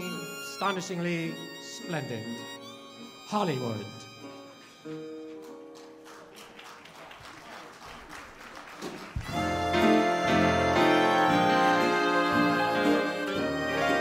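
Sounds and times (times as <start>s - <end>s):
applause: 5.2s - 9.5s
big dance band playing: 9.2s - 14.0s.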